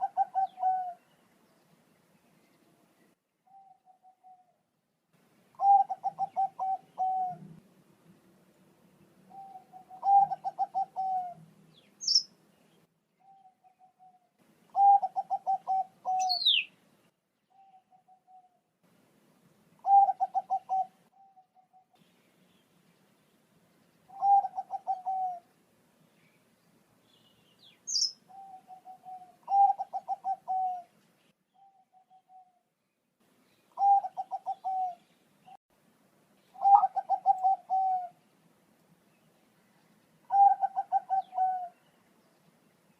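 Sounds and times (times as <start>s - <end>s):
dove rolling coos: 0.0s - 1.0s, 5.6s - 7.6s, 9.3s - 11.4s, 14.7s - 16.4s, 19.8s - 21.8s, 24.1s - 25.5s, 28.3s - 30.9s, 33.8s - 35.0s, 36.6s - 38.2s, 40.3s - 41.8s
bird high chirp: 0.0s - 4.5s, 5.6s - 7.4s, 9.3s - 16.8s, 17.5s - 18.6s, 27.1s - 30.9s, 31.5s - 32.6s, 36.4s - 38.2s, 39.2s - 42.6s.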